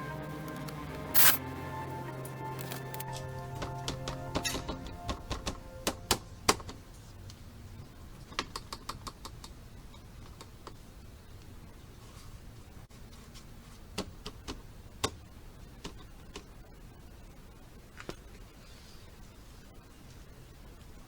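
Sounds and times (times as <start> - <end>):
rattling clicks and knocks: 3.6 - 6.8.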